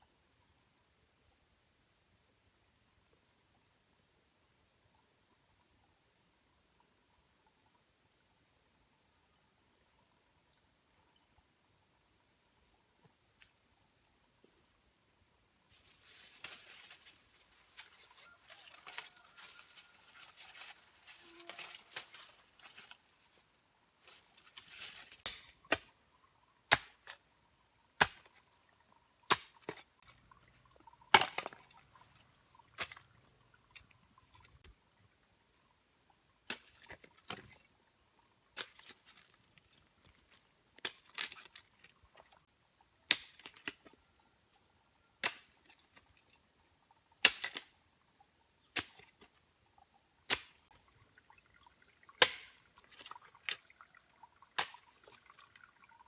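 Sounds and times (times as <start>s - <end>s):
rustling and scraping: 15.7s - 25.3s.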